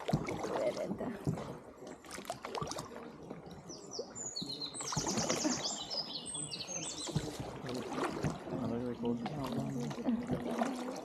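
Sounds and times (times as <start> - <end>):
songbird singing sharp notes: 3.7 - 7.2.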